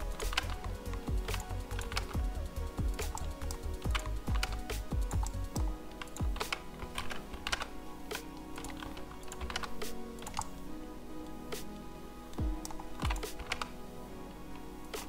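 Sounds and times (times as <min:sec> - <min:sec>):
computer keyboard and mouse clicks: 0:00.0 - 0:10.6, 0:12.4 - 0:13.8
background music with a beat: 0:00.0 - 0:15.0.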